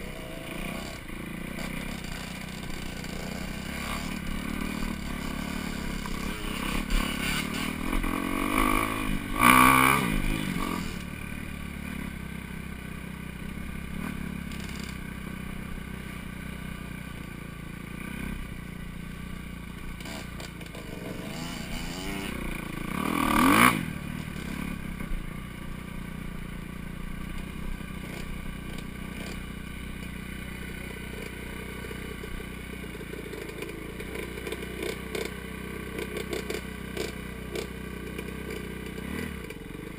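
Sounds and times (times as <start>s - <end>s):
dirt bike engine revving: 0.0s - 17.1s, 17.7s - 25.4s, 26.8s - 39.9s
clatter and scraping: 0.6s - 9.5s, 14.0s - 15.0s, 19.9s - 24.7s, 27.3s - 30.2s, 32.9s - 39.9s.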